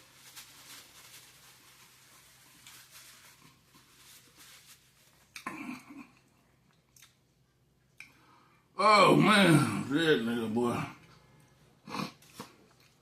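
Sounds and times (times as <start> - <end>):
man chewing food: 5.2 - 8.2, 11.0 - 13.0.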